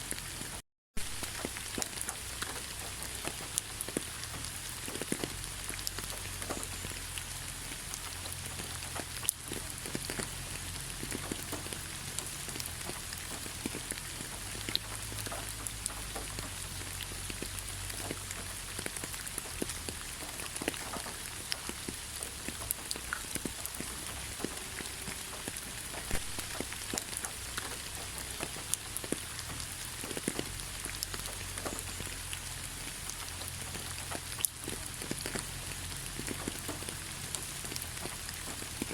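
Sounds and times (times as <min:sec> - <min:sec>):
rain falling in a forest: 0:00.0 - 0:38.9.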